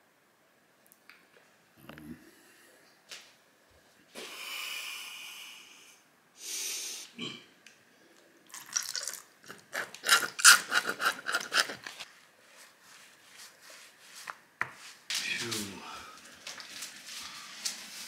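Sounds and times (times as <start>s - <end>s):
rubbing strokes on skin: 10.0s - 15.8s.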